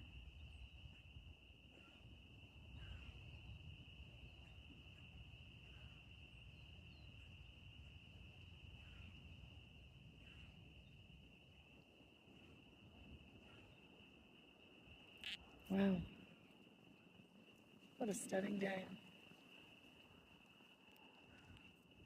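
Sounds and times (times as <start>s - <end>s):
short animal calls: 15.2s - 15.5s.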